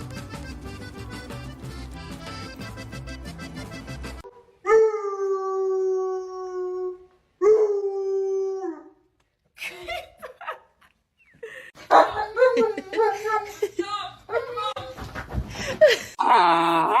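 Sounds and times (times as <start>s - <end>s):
music: 0.0s - 4.2s.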